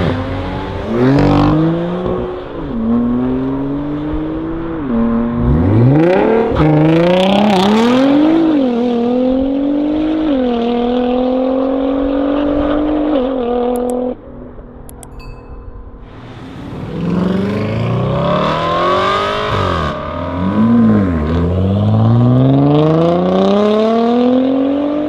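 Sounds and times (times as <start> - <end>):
turbocharged car engine revving: 16.5 - 25.0.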